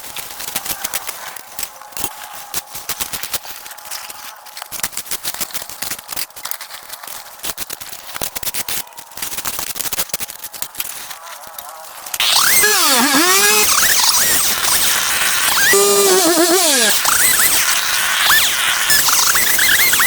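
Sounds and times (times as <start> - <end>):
branches crackling and snapping: 0.0 - 15.7.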